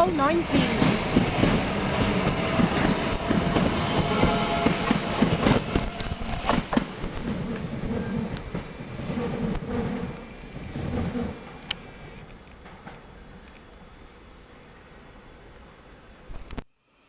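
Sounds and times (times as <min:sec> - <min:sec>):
train wheels clicking over rail joints: 0:00.0 - 0:13.8
train rumble: 0:00.0 - 0:16.2
faint whine: 0:05.8 - 0:12.2.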